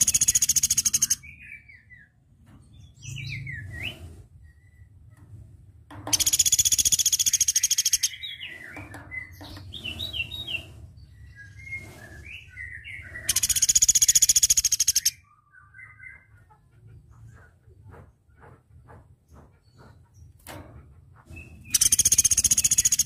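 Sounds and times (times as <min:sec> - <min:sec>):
bird rapid trills: 0:00.0 - 0:01.2, 0:06.1 - 0:08.7, 0:13.2 - 0:15.2, 0:21.7 - 0:23.0
bird chirps and whistled notes: 0:00.0 - 0:02.1, 0:06.2 - 0:16.3, 0:21.4 - 0:23.0.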